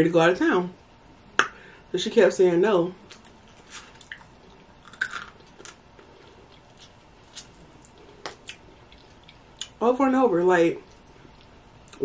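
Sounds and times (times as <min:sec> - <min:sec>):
chewing and mouth sounds: 0:03.0 - 0:09.8.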